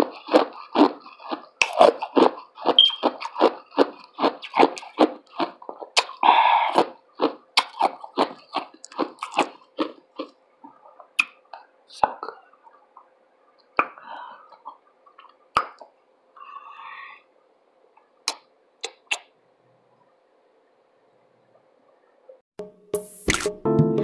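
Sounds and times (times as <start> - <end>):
chewing and crunching: 0.0 - 13.1.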